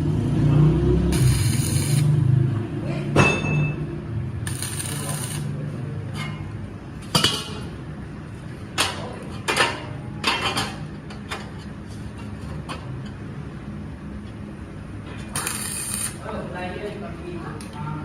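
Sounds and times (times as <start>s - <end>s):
machine hum: 0.9s - 2.8s.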